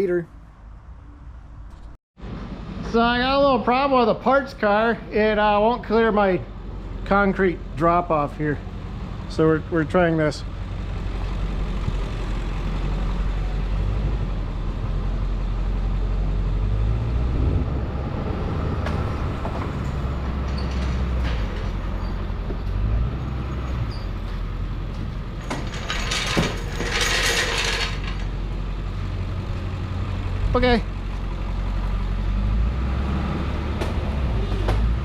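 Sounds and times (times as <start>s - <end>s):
engine running at low revs: 6.4s - 25.4s
mechanical knocks and clanks: 18.7s - 28.4s.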